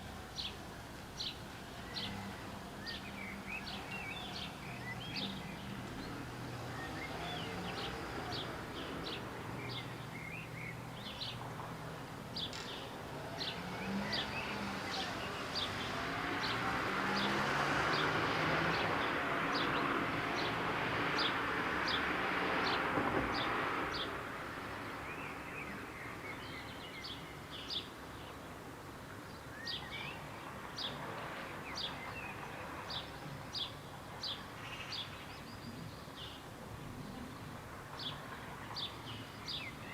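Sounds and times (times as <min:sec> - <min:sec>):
small birds chirping: 0:29.2 - 0:39.9.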